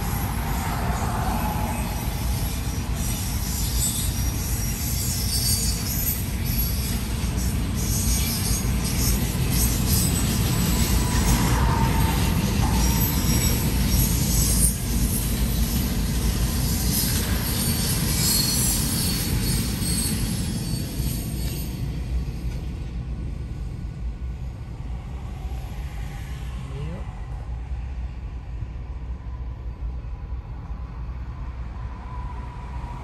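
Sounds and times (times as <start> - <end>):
high-pitched wheel squeal: 0.0 - 21.8
train wheels rumbling on rail: 0.0 - 33.0.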